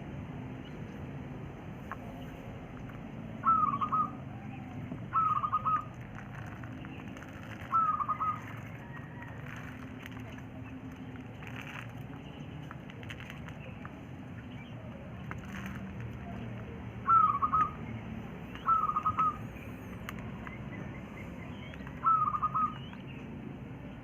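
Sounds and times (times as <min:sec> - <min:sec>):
quail calling: 0:03.4 - 0:06.0, 0:07.6 - 0:09.3, 0:17.0 - 0:23.2.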